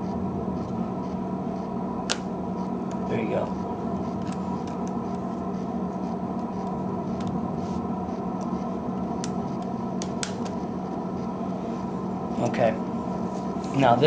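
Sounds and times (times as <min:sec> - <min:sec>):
electrical fan hum: 0:00.0 - 0:14.0.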